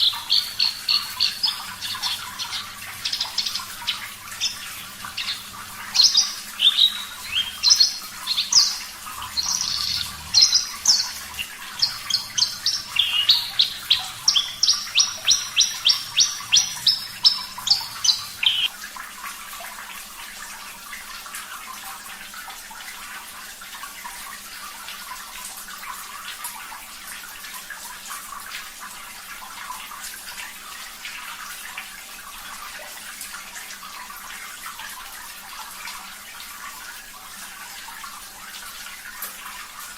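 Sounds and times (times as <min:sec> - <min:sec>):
lark singing high repeated notes: 0:00.0 - 0:18.7
running water: 0:00.0 - 0:39.9.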